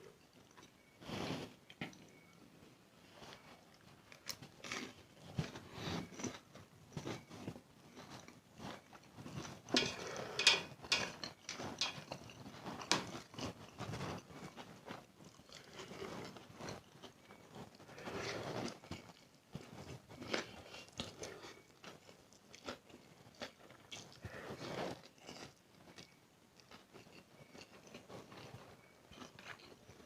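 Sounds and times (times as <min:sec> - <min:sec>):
person chewing and slurping noodles: 0:03.1 - 0:30.0.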